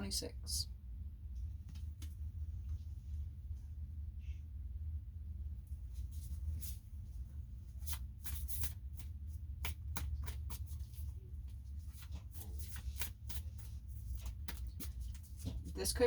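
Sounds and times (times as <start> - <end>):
steady low hum: 0.0 - 16.0
cards being shuffled: 7.7 - 15.7.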